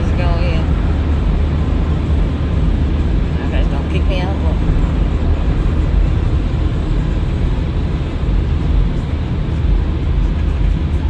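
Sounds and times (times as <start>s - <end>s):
car wash machinery running: 0.0s - 11.0s.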